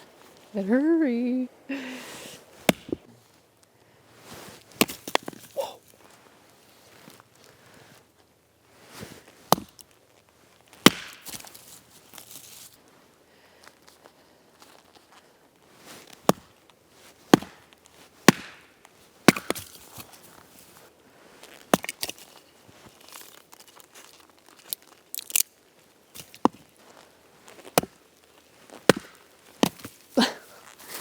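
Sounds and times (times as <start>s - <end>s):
blade chopping into wood: 2.6s - 3.0s, 10.8s - 11.6s, 17.3s - 18.7s, 19.3s - 20.1s, 27.7s - 28.0s, 28.8s - 30.0s
wood splintering and crackling: 10.8s - 12.6s, 21.6s - 31.0s.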